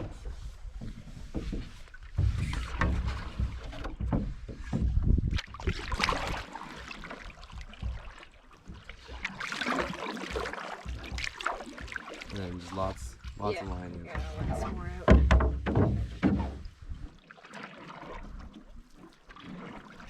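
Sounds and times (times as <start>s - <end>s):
wind rumbling on microphone: 0.0s - 6.5s
paddle strokes: 0.0s - 20.0s
water swishing against hull: 0.0s - 20.0s.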